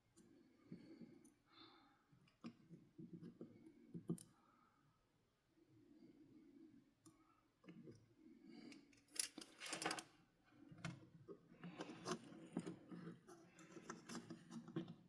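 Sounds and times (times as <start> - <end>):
toy parts clicking and rustling: 9.0 - 10.1.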